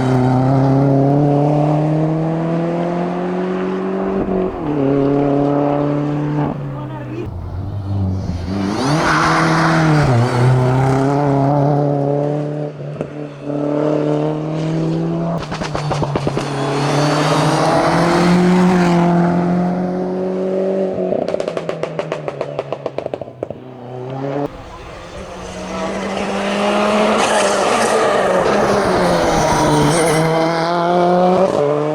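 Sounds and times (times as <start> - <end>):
race car engine under throttle: 0.0 - 31.9
exhaust crackling pops: 15.3 - 16.6.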